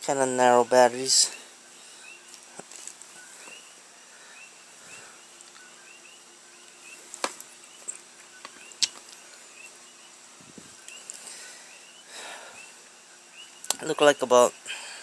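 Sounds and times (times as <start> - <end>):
high bird-like chirps: 3.1 - 14.6.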